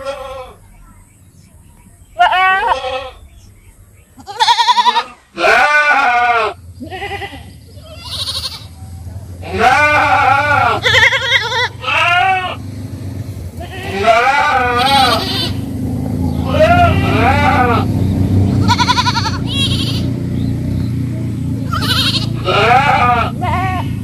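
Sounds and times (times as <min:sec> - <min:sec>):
goats bleating: 0:00.0 - 0:00.6, 0:02.2 - 0:03.3, 0:04.2 - 0:08.8, 0:09.4 - 0:12.6, 0:13.6 - 0:15.7, 0:16.4 - 0:17.9, 0:18.6 - 0:20.1, 0:21.6 - 0:24.0.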